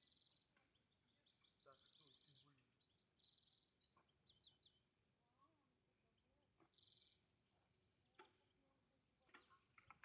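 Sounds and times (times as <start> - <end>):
birds chirping: 0.0 - 4.9.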